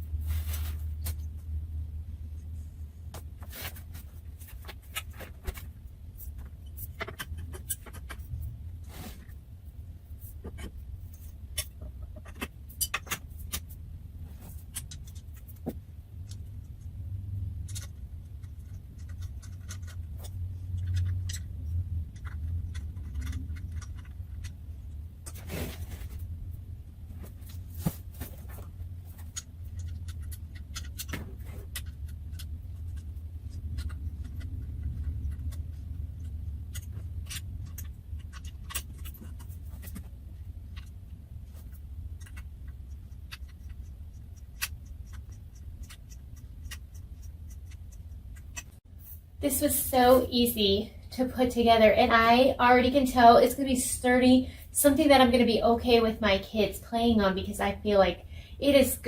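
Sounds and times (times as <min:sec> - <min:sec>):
low hum: 0:00.0 - 0:59.0
parts clicking and knocking: 0:03.1 - 0:08.6, 0:10.2 - 0:13.8, 0:14.5 - 0:25.5, 0:27.5 - 0:48.8.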